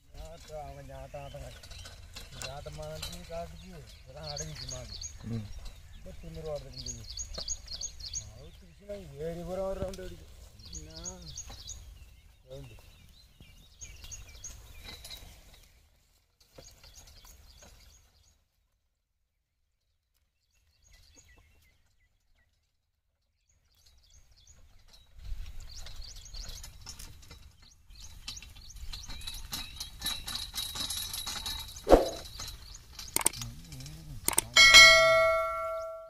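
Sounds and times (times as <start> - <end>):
birds chirping: 0.0 - 18.5, 20.4 - 22.6, 23.3 - 36.0
sharp knock: 31.9 - 32.2.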